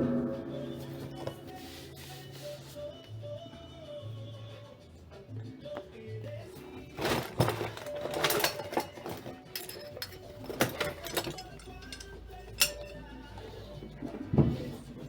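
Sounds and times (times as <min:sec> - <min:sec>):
faint music: 0:00.0 - 0:15.0
metal tools clinking: 0:06.6 - 0:13.3.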